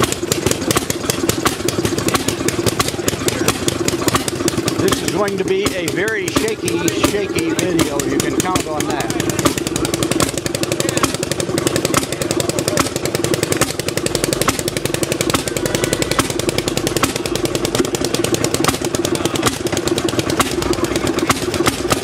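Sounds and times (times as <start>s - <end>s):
old engine firing beats: 0.0s - 22.0s.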